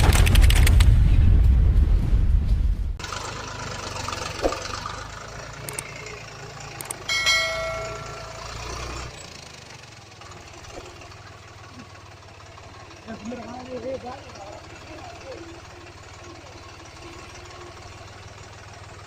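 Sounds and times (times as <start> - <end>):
loud low rumble: 0.0 - 3.0
truck engine idling: 2.9 - 19.0
ringing tone: 7.1 - 9.1.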